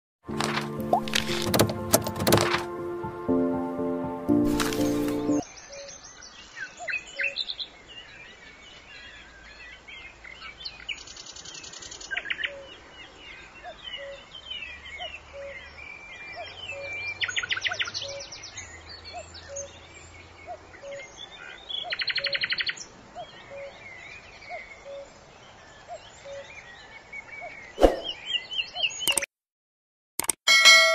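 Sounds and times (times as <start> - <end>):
birds chirping and whistling: 27.8 - 29.3
sharp click: 29.1 - 29.3, 30.2 - 30.4.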